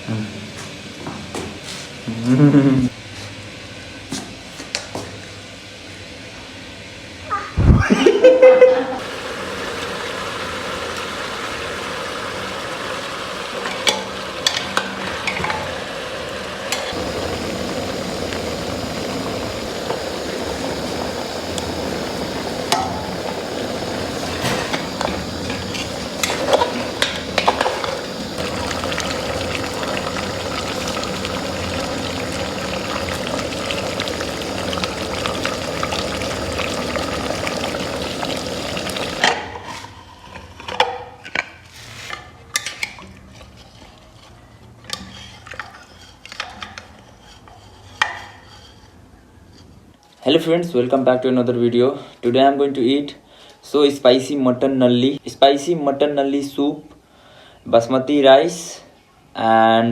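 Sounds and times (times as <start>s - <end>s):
food sizzling in a pan: 7.6s - 40.4s
utensil scraping a pan: 39.5s - 49.9s.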